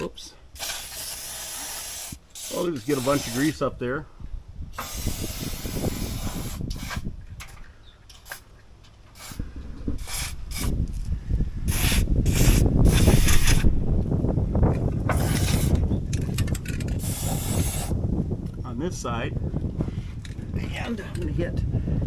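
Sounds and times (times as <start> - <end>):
aerosol spray hissing: 0.6 - 3.6, 4.8 - 7.0, 10.0 - 10.7, 11.7 - 13.6, 17.0 - 17.9
low rumbling and rattling: 8.7 - 22.0.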